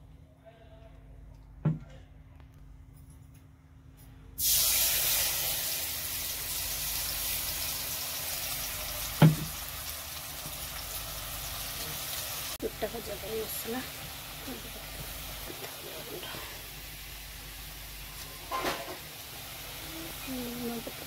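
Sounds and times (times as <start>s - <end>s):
food sizzling in hot oil: 4.4s - 21.0s.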